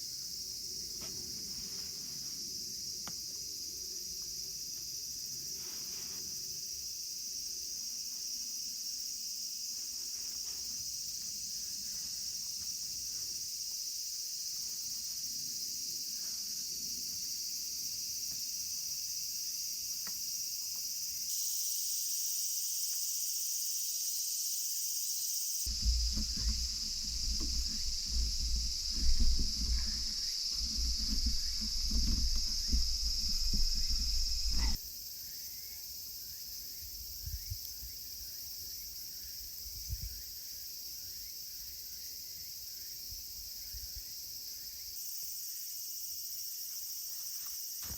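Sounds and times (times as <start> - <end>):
insect chorus trilling: 0.0 - 47.9
irregular low rumbling: 25.7 - 34.8.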